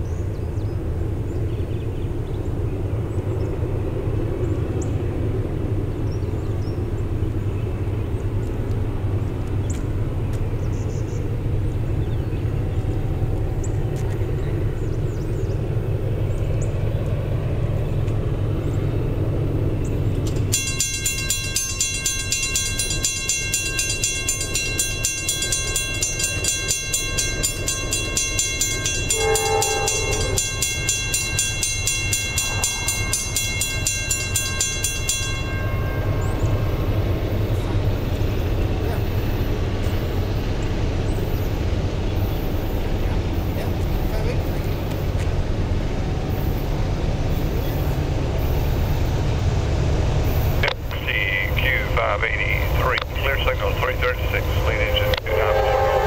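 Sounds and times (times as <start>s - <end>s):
freight train rumble: 0.0s - 56.0s
pulsing warning signal: 20.4s - 40.3s, 50.5s - 56.0s.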